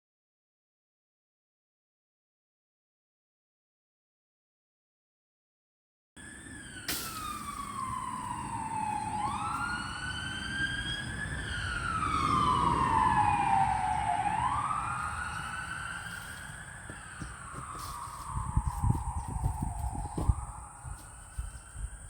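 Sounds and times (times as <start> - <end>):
emergency siren wailing: 6.2 - 22.0.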